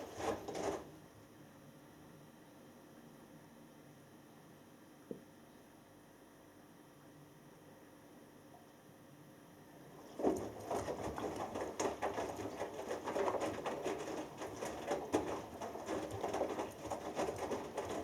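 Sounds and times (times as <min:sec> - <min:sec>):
water sloshing: 0:10.0 - 0:18.0
washing machine drum tumbling: 0:10.1 - 0:18.0.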